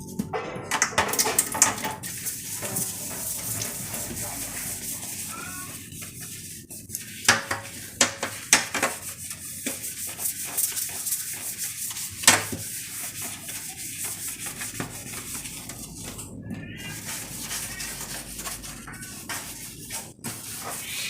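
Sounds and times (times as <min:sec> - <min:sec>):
scrubbing strokes: 0:01.3 - 0:21.0.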